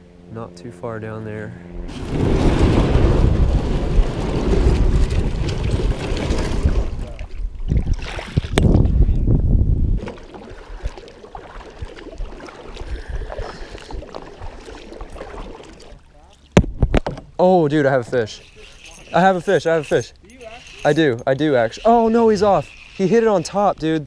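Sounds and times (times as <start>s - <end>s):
paddling water sounds: 1.8s - 9.3s, 9.9s - 24.0s
wind buffeting microphone: 1.8s - 14.7s
kayak knocks: 16.5s - 17.4s.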